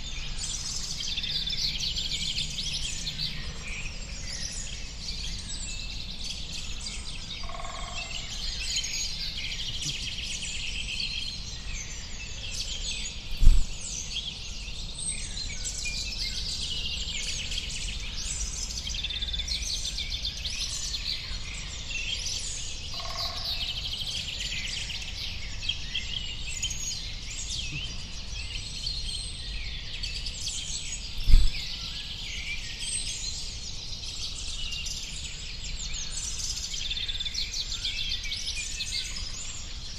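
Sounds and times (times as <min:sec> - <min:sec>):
small birds chirping and trilling: 0:00.0 - 0:39.9
brief low thump: 0:13.4 - 0:13.8, 0:31.2 - 0:31.7.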